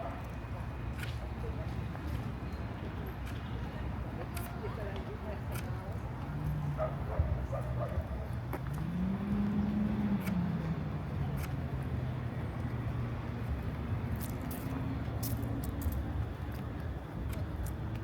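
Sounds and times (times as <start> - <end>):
vehicle engine running low: 8.4 - 13.9.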